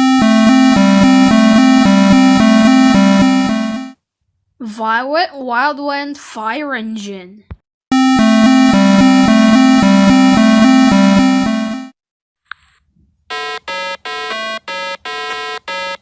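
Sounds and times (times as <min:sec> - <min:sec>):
buzzy two-pitch electronic tone: 0:00.0 - 0:04.0, 0:07.9 - 0:11.9
electronic beeps: 0:00.0 - 0:04.0.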